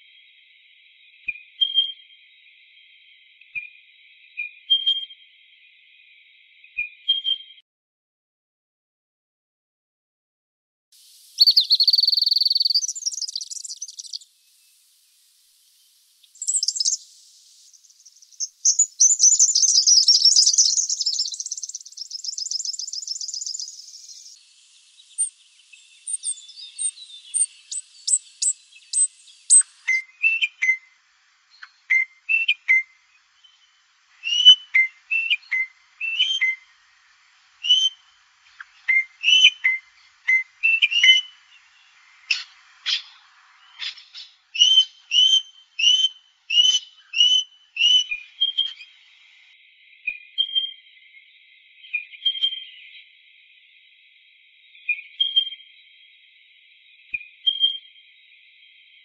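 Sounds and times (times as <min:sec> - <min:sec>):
whistled bird calls: 0:01.2 - 0:02.1, 0:04.4 - 0:05.2, 0:06.7 - 0:07.6, 0:11.2 - 0:14.8, 0:15.7 - 0:31.0, 0:31.6 - 0:36.7, 0:37.6 - 0:38.2, 0:38.8 - 0:49.2, 0:50.0 - 0:50.8, 0:51.9 - 0:53.0, 0:54.9 - 0:55.7, 0:57.1 - 0:58.0
high bird chirps: 0:11.2 - 0:14.9, 0:15.5 - 0:30.8
bird trilling: 0:11.4 - 0:14.2, 0:16.3 - 0:24.4, 0:25.0 - 0:30.5.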